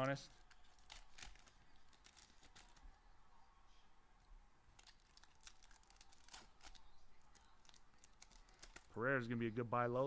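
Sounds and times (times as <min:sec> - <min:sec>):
faint crinkles and clicks: 0:00.3 - 0:03.0, 0:04.7 - 0:09.0.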